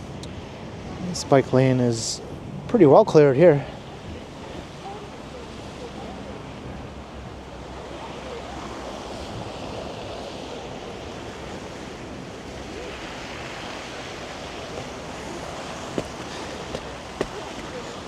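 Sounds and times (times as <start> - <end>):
passing street traffic: 11.3 - 18.0.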